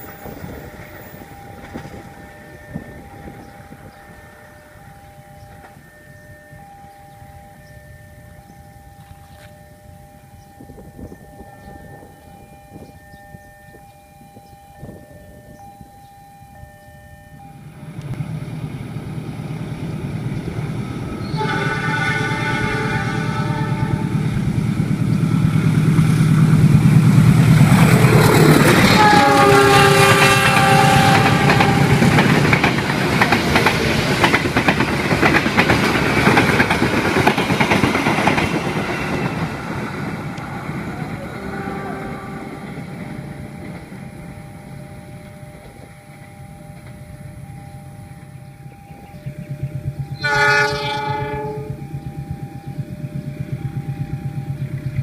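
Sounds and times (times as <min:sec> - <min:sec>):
train horn: 0:21.2 - 0:24.7, 0:27.9 - 0:34.4, 0:40.4 - 0:55.0.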